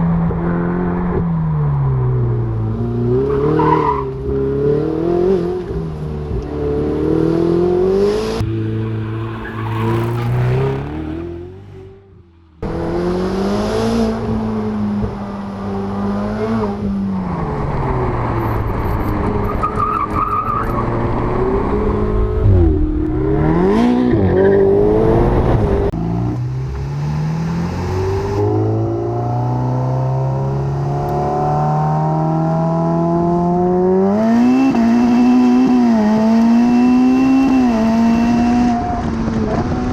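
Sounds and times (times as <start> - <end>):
sports car engine revving: 21.2 - 26.0.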